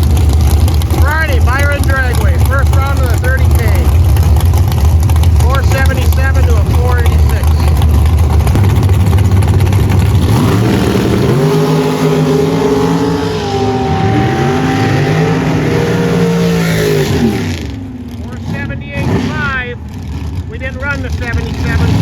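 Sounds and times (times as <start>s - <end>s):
drag racing cars engines: 0.0s - 22.0s.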